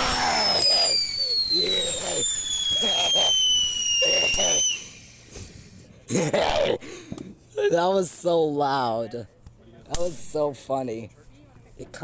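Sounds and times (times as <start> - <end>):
firework high whistle falling: 0.0 - 5.3
firework hiss: 0.0 - 5.8.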